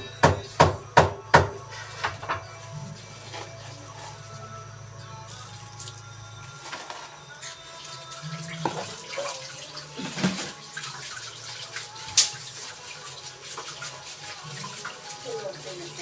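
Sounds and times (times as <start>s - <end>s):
water running in sink: 5.3s - 16.0s.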